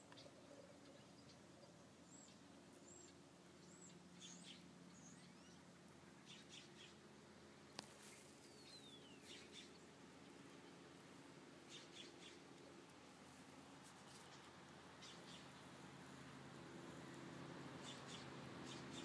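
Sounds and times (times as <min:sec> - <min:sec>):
bird chirps and calls: 0:00.0 - 0:07.0, 0:08.4 - 0:09.9, 0:11.7 - 0:12.4, 0:14.3 - 0:15.6, 0:17.8 - 0:19.0.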